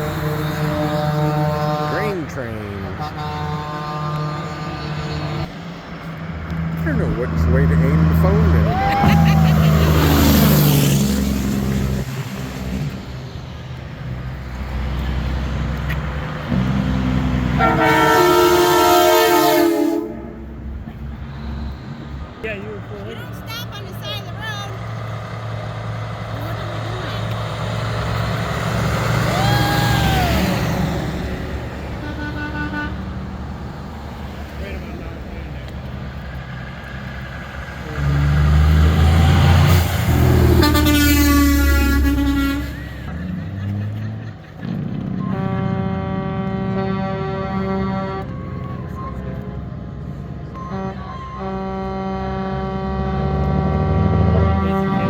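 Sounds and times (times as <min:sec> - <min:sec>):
air horn blast: 0:00.0 - 0:05.5, 0:17.5 - 0:20.8, 0:31.8 - 0:33.2, 0:39.6 - 0:43.1, 0:45.2 - 0:49.2, 0:50.5 - 0:55.0
truck engines rumbling: 0:00.0 - 0:55.0.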